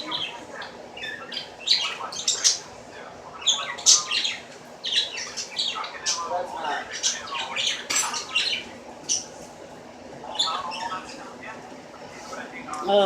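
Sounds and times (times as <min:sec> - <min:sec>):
bird squawking and chirping: 0:00.0 - 0:02.7, 0:03.4 - 0:09.3, 0:10.3 - 0:11.2.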